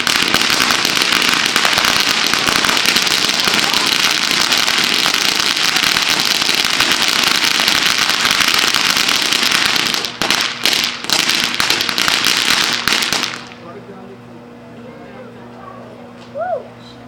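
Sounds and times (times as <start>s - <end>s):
fireworks crackling: 0.0s - 13.6s.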